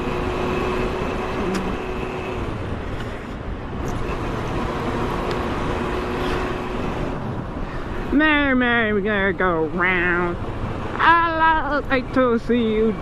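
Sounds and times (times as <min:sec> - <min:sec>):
motorcycle engine running: 0:00.0 - 0:02.8
wind and road noise: 0:00.0 - 0:13.0.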